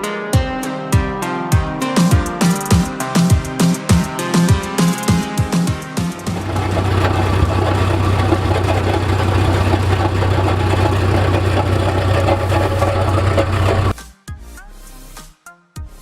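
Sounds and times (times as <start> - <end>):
engine running steadily: 6.3 - 13.9.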